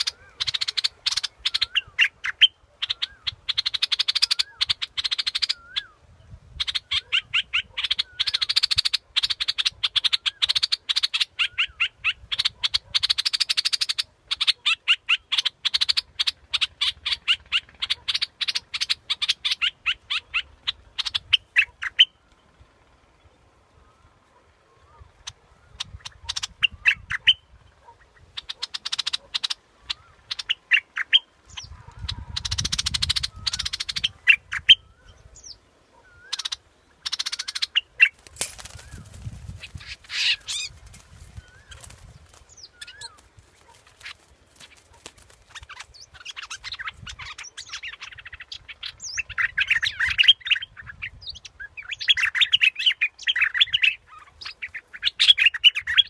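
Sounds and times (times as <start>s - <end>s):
bulbul chattering and chirping: 0.0s - 5.9s, 6.5s - 22.2s, 36.1s - 50.7s.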